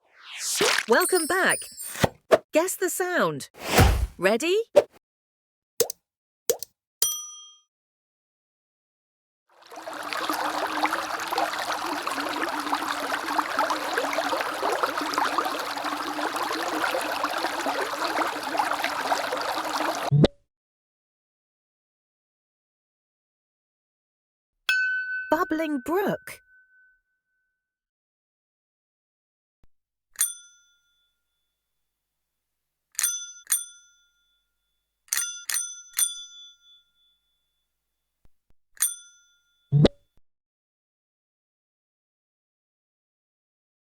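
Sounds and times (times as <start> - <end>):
stream babbling over stones: 9.6 - 20.1
bicycle bell ringing: 33.0 - 34.3, 35.1 - 37.3, 38.8 - 39.6.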